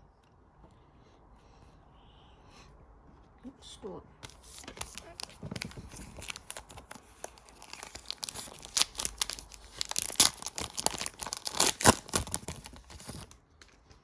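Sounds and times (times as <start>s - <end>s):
plastic wrapper tearing and crinkling: 4.2s - 14.0s.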